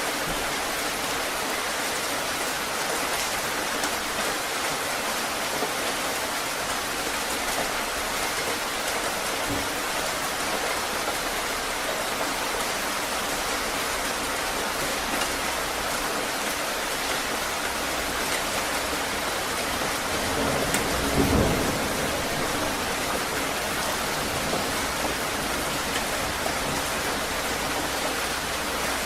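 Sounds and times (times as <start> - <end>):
heavy rain falling: 0.0 - 29.0
low rumble of thunder: 19.8 - 27.8.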